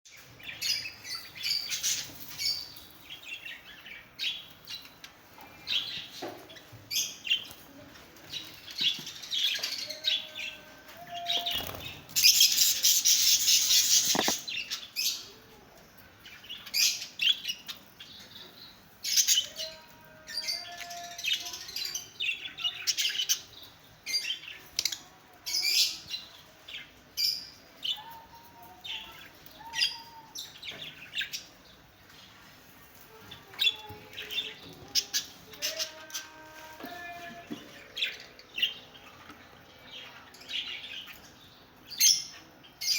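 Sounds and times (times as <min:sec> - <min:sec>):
lovebirds chirping and squawking: 0:00.1 - 0:15.4, 0:16.0 - 0:42.9.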